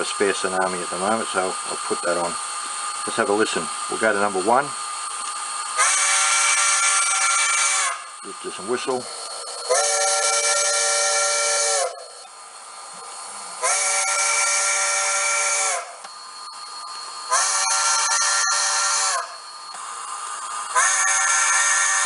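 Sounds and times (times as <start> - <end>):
steam hiss: 0.0 - 16.0, 16.9 - 22.0
steam locomotive whistle blasts: 5.8 - 9.0, 9.6 - 12.2, 13.6 - 16.0, 17.2 - 19.6, 20.7 - 22.0.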